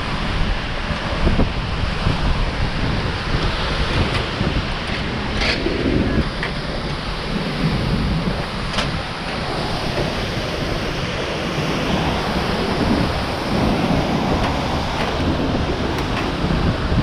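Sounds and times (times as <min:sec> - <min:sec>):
waterfall rushing: 0:00.0 - 0:17.0
wind buffeting microphone: 0:00.0 - 0:17.0.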